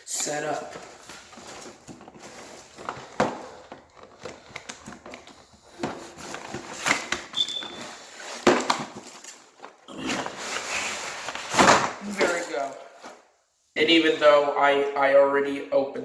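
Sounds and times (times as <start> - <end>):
packaging rustling: 0.2 - 13.2
packaging clicks and knocks: 0.7 - 9.8.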